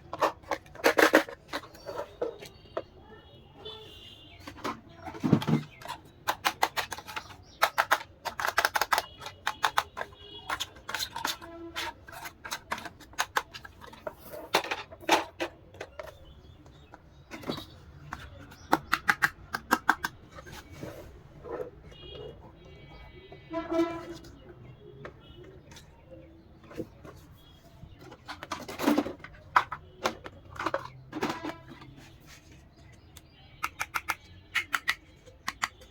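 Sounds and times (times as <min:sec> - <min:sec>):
plastic toy parts clicking: 0:00.0 - 0:02.5, 0:04.5 - 0:20.6, 0:28.0 - 0:31.9, 0:33.2 - 0:35.9.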